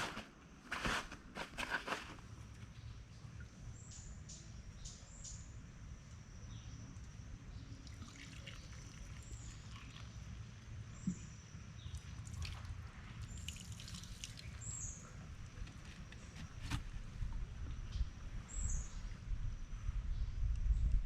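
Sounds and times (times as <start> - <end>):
faint trickling water: 7.7 - 10.7, 11.9 - 15.6.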